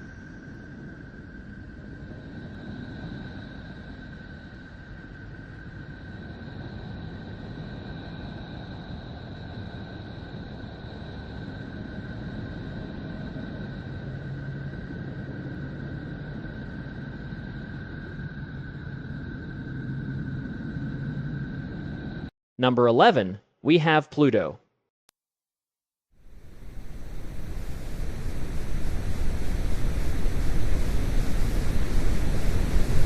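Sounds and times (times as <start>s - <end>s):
low hum: 0.0s - 22.3s, 26.2s - 33.0s
low rushing noise: 26.2s - 33.0s.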